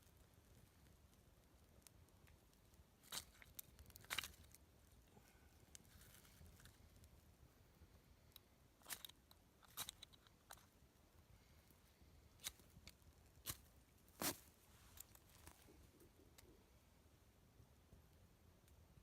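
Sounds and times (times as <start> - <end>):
wood fire crackling and popping: 0.0 - 7.4.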